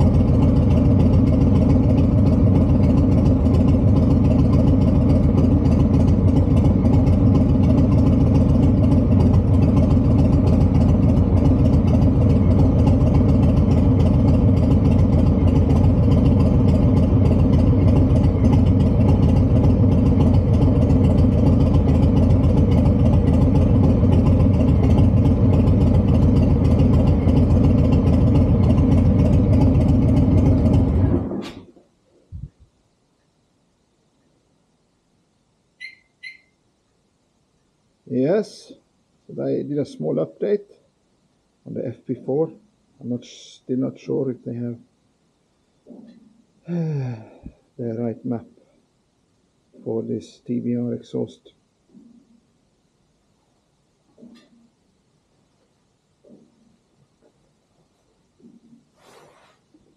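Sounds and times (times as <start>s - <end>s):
motorcycle engine idling: 0.0s - 31.4s.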